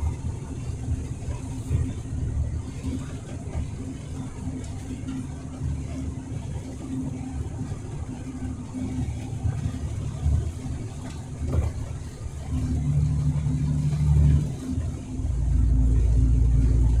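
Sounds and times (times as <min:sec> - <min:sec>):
truck engine drone: 0:11.6 - 0:17.0
road noise: 0:12.4 - 0:17.0.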